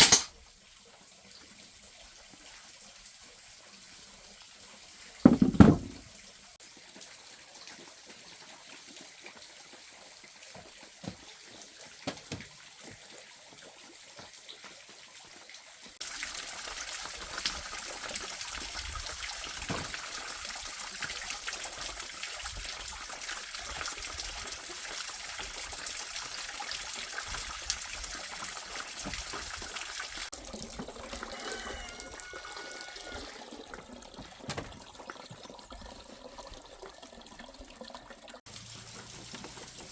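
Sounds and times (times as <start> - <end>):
water running and trickling: 0.2 - 39.9.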